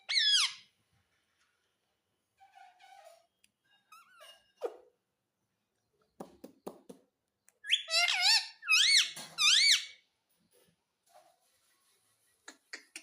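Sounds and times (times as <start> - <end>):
parakeet squawking: 7.7 - 10.0.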